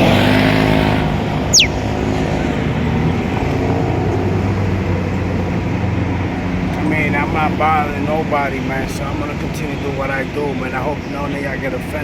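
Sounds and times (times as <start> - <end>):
high whistle sliding down: 1.5 - 1.9.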